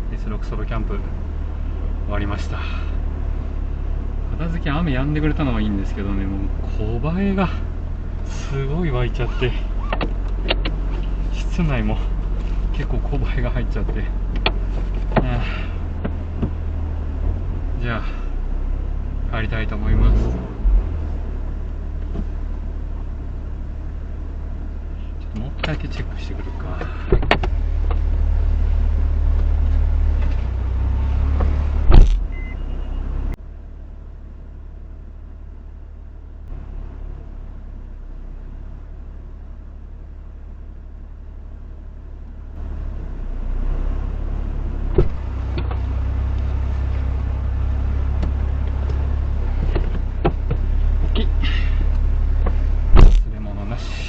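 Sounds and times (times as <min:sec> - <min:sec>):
car engine idling: 0:00.0 - 0:20.0, 0:20.6 - 0:54.0
loud thump: 0:31.8 - 0:32.4, 0:44.9 - 0:45.2, 0:52.9 - 0:53.3.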